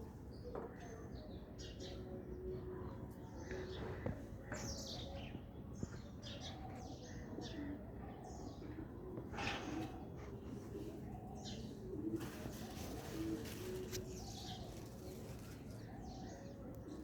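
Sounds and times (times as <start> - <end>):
small birds chirping: 0.4 - 17.0
pigeon cooing: 9.1 - 17.0.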